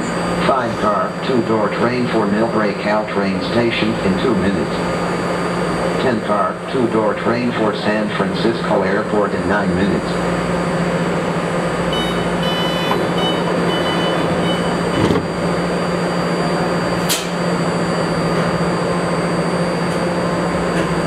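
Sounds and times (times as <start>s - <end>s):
train humming: 0.0s - 21.0s
repeated high beeps: 11.9s - 15.1s.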